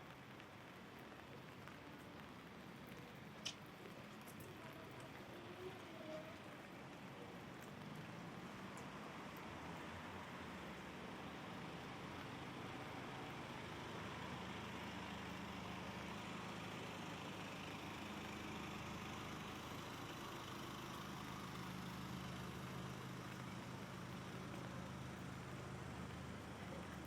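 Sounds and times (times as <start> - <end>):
rain hiss: 0.0 - 27.0
vehicle engine idling: 8.4 - 27.0.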